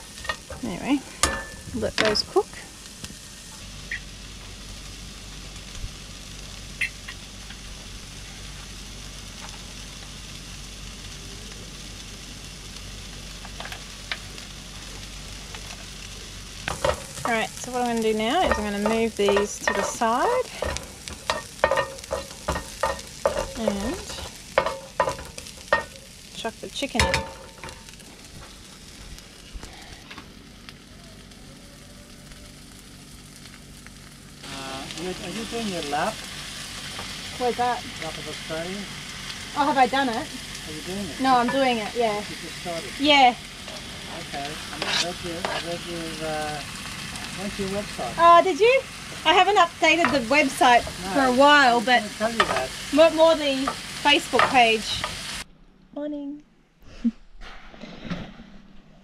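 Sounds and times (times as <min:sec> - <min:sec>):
onions sizzling in a hot pan: 0:00.0 - 0:55.5.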